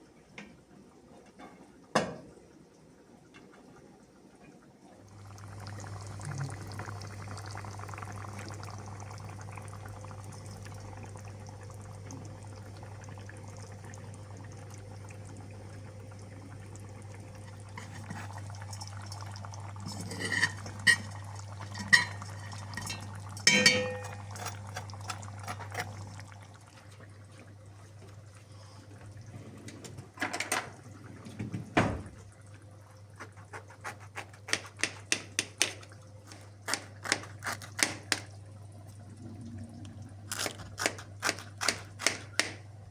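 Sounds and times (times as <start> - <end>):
liquid pouring with hiss: 5.1 - 29.7
dishes and utensils clinking: 19.9 - 21.2, 21.8 - 24.6.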